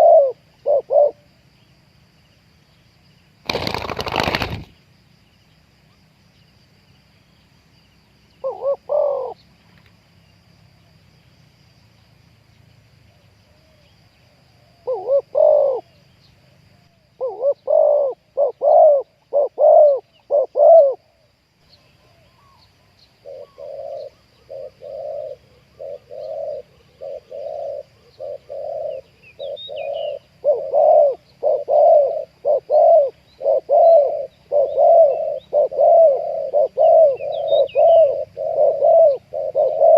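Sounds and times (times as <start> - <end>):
doves cooing: 0.0 - 1.2, 3.5 - 4.7, 8.4 - 9.4, 14.8 - 16.0, 17.2 - 21.2, 23.2 - 39.9.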